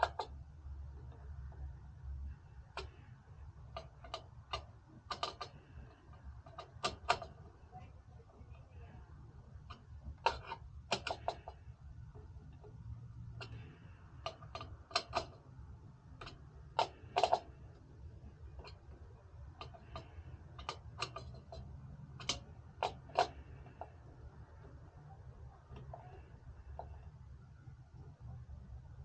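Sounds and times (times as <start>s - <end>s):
steady low hum: 0.0s - 29.0s
clicks and taps of tools on hardware: 3.7s - 7.4s, 9.7s - 11.6s, 13.4s - 15.4s, 16.2s - 17.5s, 19.5s - 24.8s.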